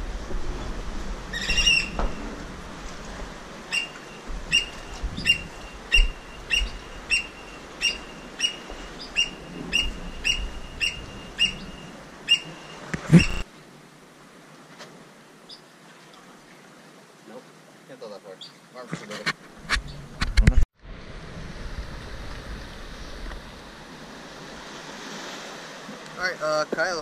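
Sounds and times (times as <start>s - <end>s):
bird calling in piercing notes: 1.4s - 2.0s, 3.7s - 13.4s.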